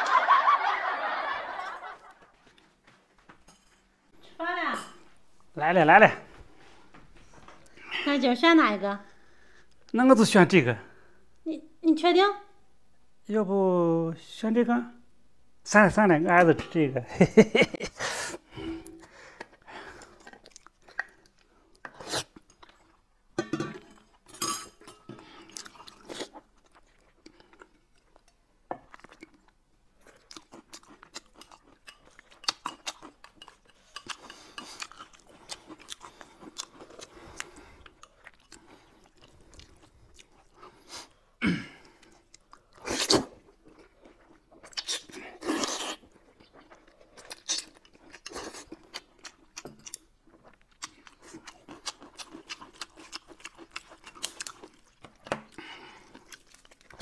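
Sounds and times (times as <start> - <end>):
chewing noodles: 18.8 - 23.2, 25.3 - 57.0.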